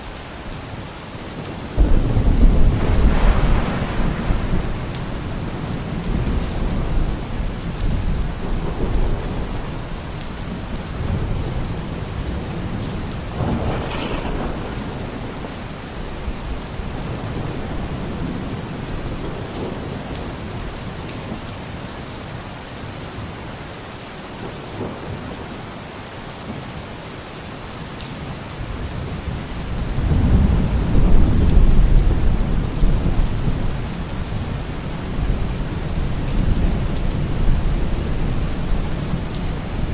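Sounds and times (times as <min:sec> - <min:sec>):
steady rain: 0:00.0 - 0:39.9
thunder rumbling: 0:01.7 - 0:20.0, 0:29.0 - 0:39.9.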